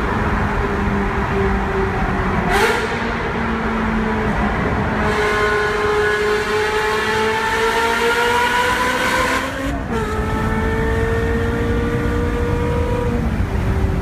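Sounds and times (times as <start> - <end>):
sports car engine revving: 2.4 - 13.6.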